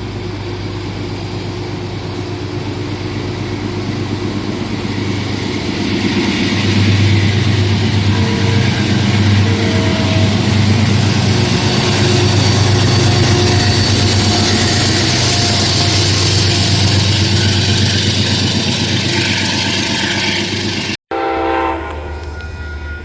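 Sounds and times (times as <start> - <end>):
train passing close by: 0.0 - 23.0
deep rumble: 1.6 - 19.8.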